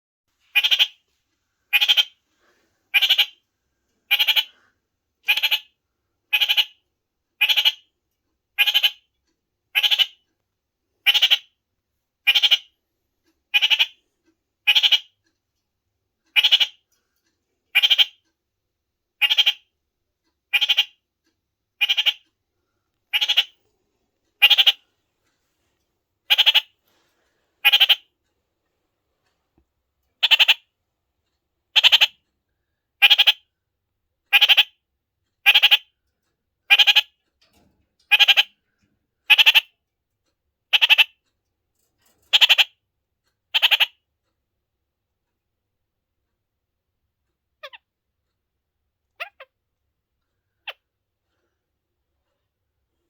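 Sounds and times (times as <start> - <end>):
parakeet calling: 0.5 - 1.0, 1.7 - 2.2, 2.9 - 3.4, 4.1 - 4.5, 5.2 - 5.7, 6.3 - 6.8, 7.4 - 7.9, 8.6 - 9.0, 9.7 - 10.2, 11.1 - 11.6, 12.2 - 12.7, 13.5 - 14.0, 14.7 - 15.2, 16.4 - 16.8, 17.8 - 18.2, 19.2 - 19.7, 20.5 - 21.0, 21.8 - 22.2, 23.1 - 23.6, 24.4 - 24.9, 26.3 - 26.8, 27.6 - 28.1, 30.2 - 30.7, 31.8 - 32.2, 33.0 - 33.4, 34.3 - 34.8, 35.4 - 35.9, 36.7 - 37.1, 38.1 - 38.5, 39.3 - 39.7, 40.7 - 41.1, 42.3 - 42.7, 43.5 - 44.0.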